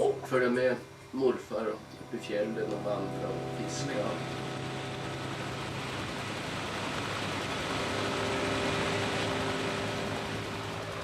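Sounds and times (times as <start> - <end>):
faint low hum: 0.0 - 11.0
rushing engine-like noise: 2.6 - 11.0.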